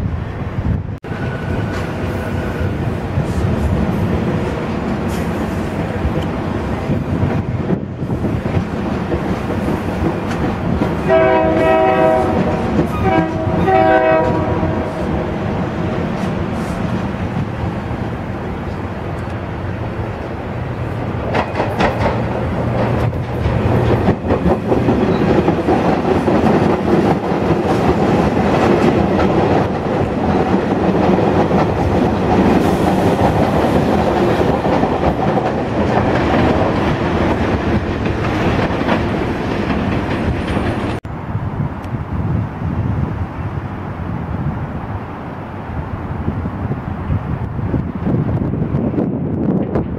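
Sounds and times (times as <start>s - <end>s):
train wheels clacking over rail joints: 3.2s - 14.9s, 21.0s - 41.0s
train horn blasts: 11.0s - 15.3s.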